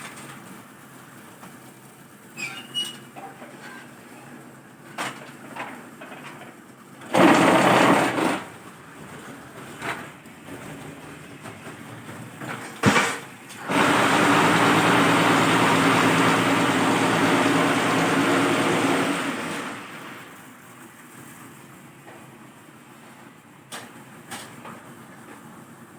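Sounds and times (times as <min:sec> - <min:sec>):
block making machine running: 0:07.0 - 0:20.2.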